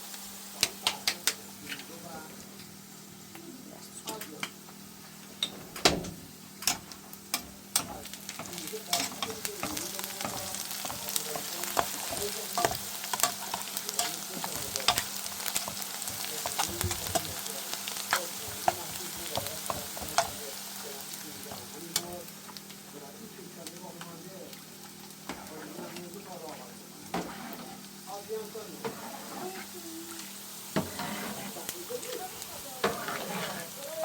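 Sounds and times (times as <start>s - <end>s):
food sizzling in hot oil: 0.0s - 34.0s
utensil scraping a pan: 7.8s - 20.4s, 27.1s - 27.9s, 28.8s - 29.8s, 30.7s - 34.0s.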